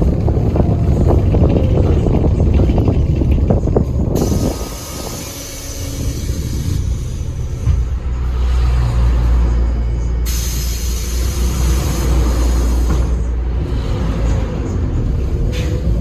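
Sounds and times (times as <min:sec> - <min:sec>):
bus engine rumbling: 0:00.0 - 0:16.0
compressed air hissing: 0:04.2 - 0:07.6, 0:10.3 - 0:13.2.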